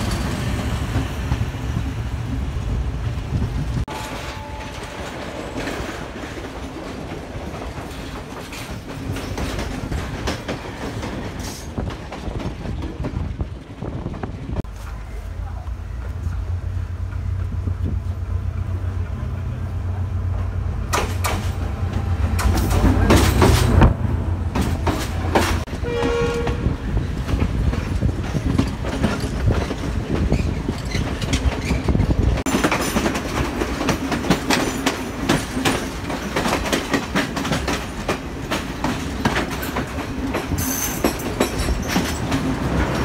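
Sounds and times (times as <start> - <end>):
train wheels clattering over rail joints: 0.0 - 14.6, 20.9 - 43.0
train horn blast: 3.9 - 5.5, 25.7 - 26.8.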